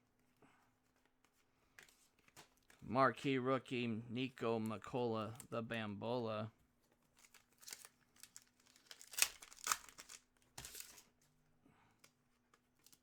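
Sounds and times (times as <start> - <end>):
wrappers crinkling: 7.0 - 11.2, 12.5 - 13.0.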